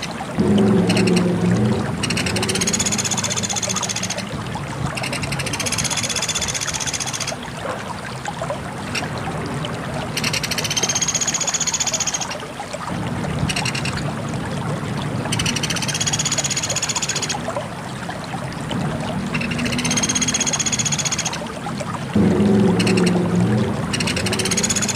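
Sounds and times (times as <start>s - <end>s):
rushing background like running water: 0.0s - 24.9s
bird singing high-pitched trills: 5.0s - 7.4s, 10.2s - 12.3s, 15.4s - 17.4s, 23.9s - 24.9s.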